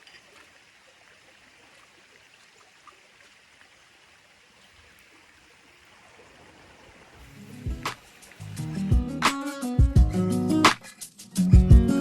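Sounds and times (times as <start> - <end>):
faint running water: 0.0 - 9.2.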